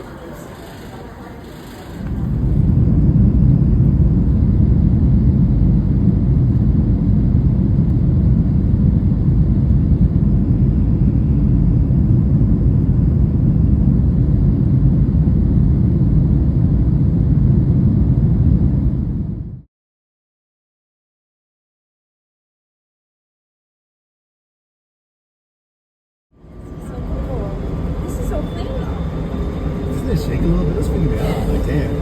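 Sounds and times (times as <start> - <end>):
loud low rumble: 1.6 - 19.7, 26.4 - 32.0.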